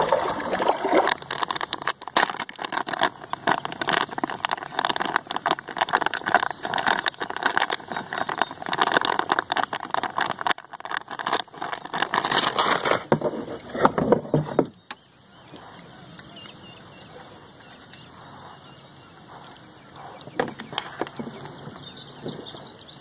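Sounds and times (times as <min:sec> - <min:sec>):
boat rattling and crackling noise: 0:00.0 - 0:23.0.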